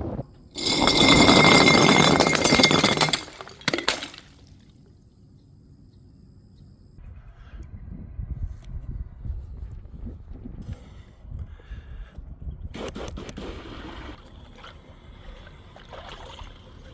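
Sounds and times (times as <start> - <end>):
glass smashing: 0.6 - 4.4.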